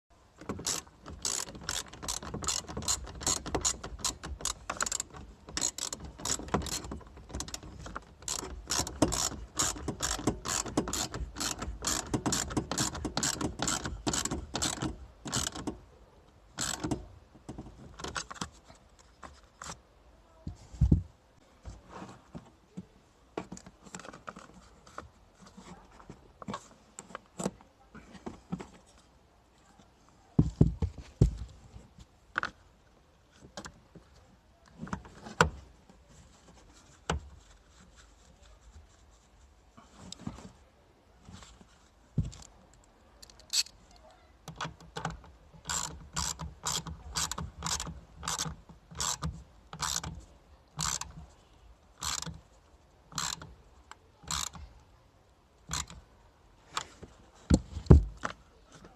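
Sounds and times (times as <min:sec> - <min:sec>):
ratchet wrench clicking: 0:00.6 - 0:06.9, 0:08.2 - 0:15.7, 0:16.6 - 0:17.0, 0:49.8 - 0:50.1, 0:50.8 - 0:51.1, 0:53.1 - 0:53.4, 0:54.3 - 0:54.6.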